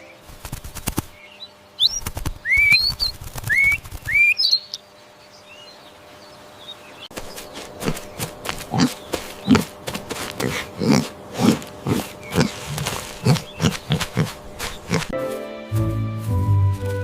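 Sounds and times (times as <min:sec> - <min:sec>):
wing flaps rustling: 0:00.1 - 0:01.2, 0:01.8 - 0:04.5, 0:07.1 - 0:15.2
bird whistled chirps: 0:01.8 - 0:04.8.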